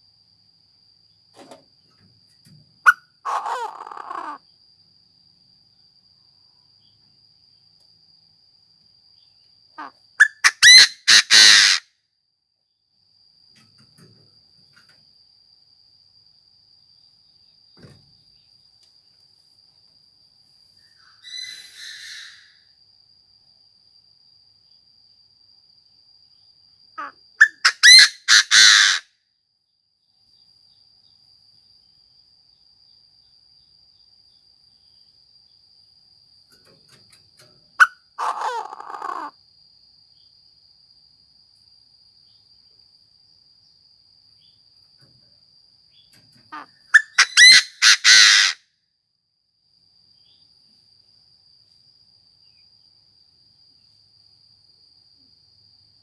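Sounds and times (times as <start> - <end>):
high insect trill: 0.0 - 56.0
francolin calling: 2.9 - 4.4, 9.8 - 11.8, 20.8 - 22.6, 27.0 - 29.0, 37.8 - 39.3, 45.9 - 48.6.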